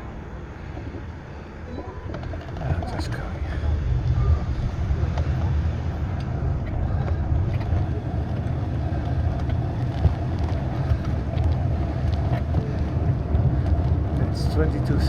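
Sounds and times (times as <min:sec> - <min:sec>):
ride vibration rumble and rattle: 0:00.0 - 0:15.0.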